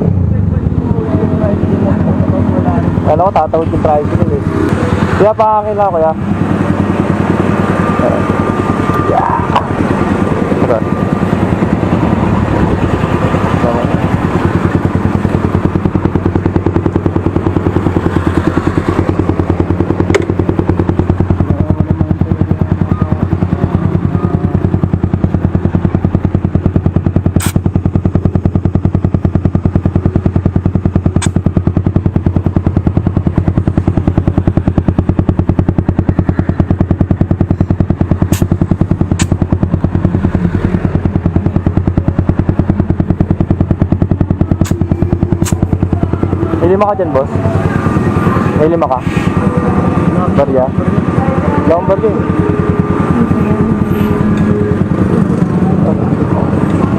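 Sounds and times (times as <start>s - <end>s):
motorcycle idling: 0.0s - 56.9s
sharp clicks: 24.7s - 46.1s.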